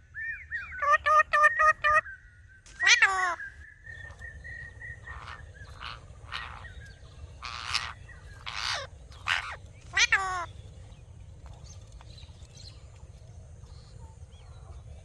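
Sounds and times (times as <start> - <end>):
parrot calling: 4.5 - 10.6
raspy hissing parrot calls: 7.4 - 10.5.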